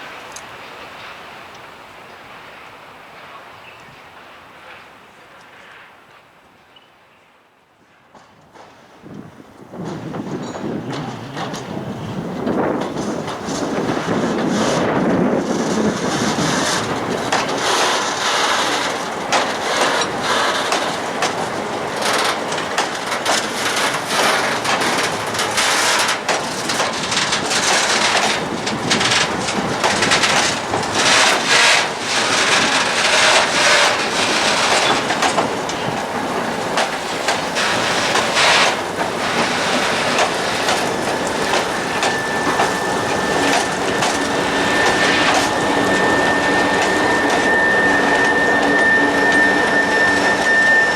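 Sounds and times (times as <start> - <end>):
wheels clattering over rail joints: 8.1 - 50.9
faint steady squeal: 27.0 - 50.9.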